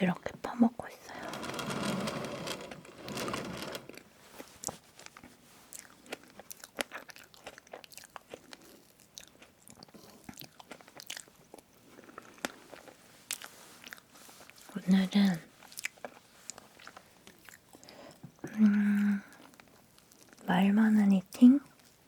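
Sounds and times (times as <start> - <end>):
chewing cake close up: 4.4 - 14.8, 15.5 - 20.6, 21.6 - 22.0.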